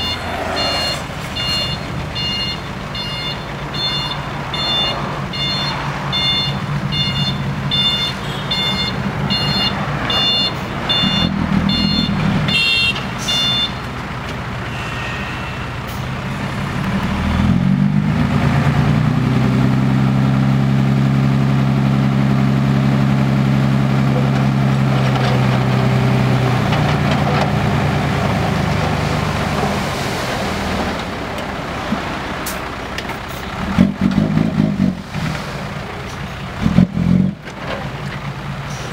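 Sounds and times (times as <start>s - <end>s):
reversing alarm beeping: 0.0s - 13.8s
diesel truck engine running: 0.0s - 14.7s, 15.8s - 38.9s.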